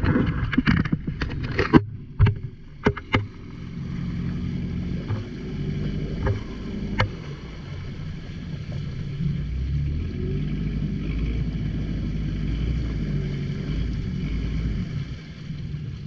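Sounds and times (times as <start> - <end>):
water or wind noise: 0.0 - 16.0
boat engine droning: 1.1 - 16.0
sharp knocks: 1.6 - 3.4, 6.2 - 7.2.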